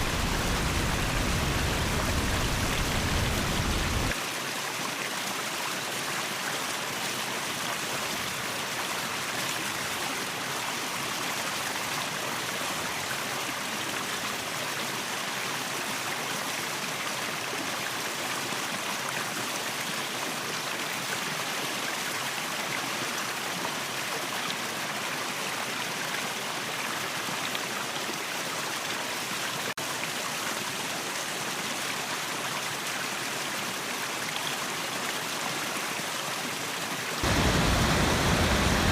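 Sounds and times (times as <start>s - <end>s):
waterfall rushing: 0.0s - 4.2s, 36.5s - 38.9s.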